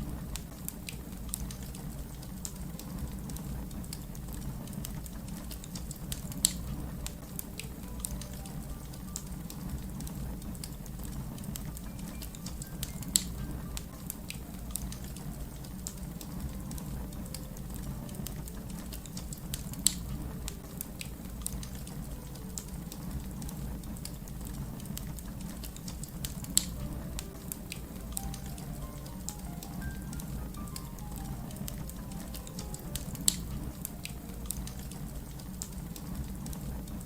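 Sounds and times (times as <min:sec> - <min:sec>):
fire crackling and popping: 0:00.0 - 0:37.0.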